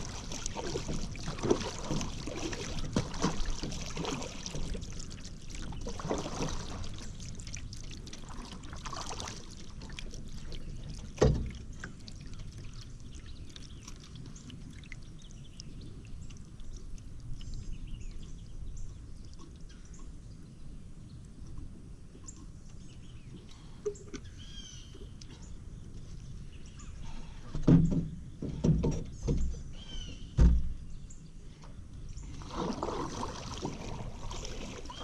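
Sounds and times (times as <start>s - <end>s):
paddle splashing water: 0.0s - 17.5s, 32.2s - 35.0s
faint bird chirps: 22.2s - 25.6s.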